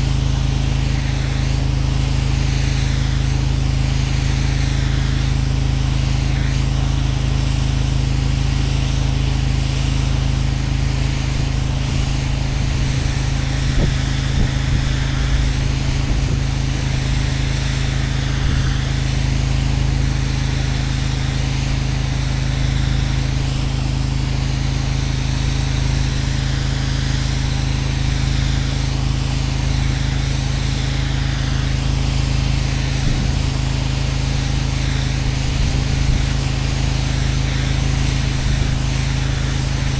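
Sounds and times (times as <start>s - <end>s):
pressure washer engine running: 0.0s - 39.9s
water jet hissing on concrete: 0.0s - 39.9s.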